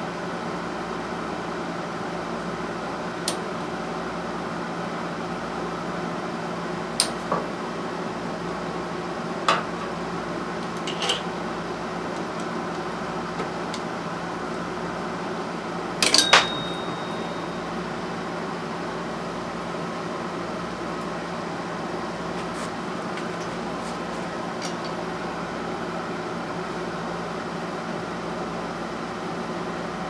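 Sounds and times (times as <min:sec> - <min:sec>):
hand tools clinking on metal: 0:10.6 - 0:11.3, 0:16.0 - 0:17.7, 0:22.4 - 0:25.0
metallic ring: 0:16.0 - 0:18.3.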